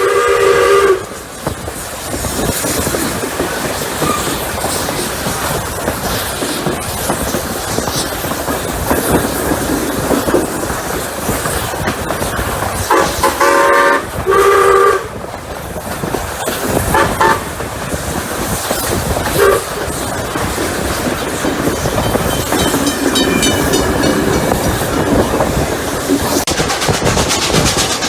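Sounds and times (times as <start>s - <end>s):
steam whistle blasts: 0.0s - 1.1s, 12.9s - 15.1s, 17.0s - 17.4s
steam train rumble: 0.0s - 28.0s.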